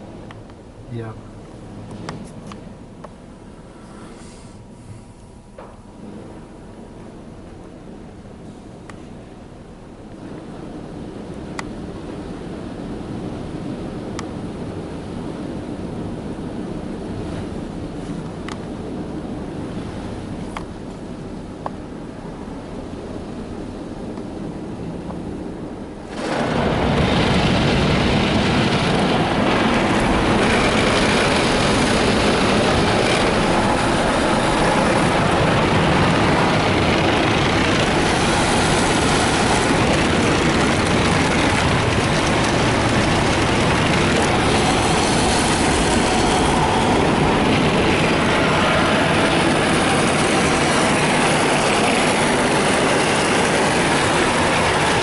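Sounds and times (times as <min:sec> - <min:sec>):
car wash brushes and water spray: 0:25.9 - 0:55.0.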